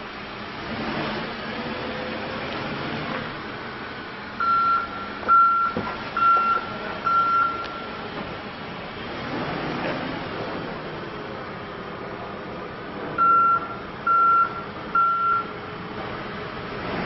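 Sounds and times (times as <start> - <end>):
diesel engine running: 0.0 - 17.0
backup alarm beeping: 4.4 - 8.0, 13.2 - 15.5.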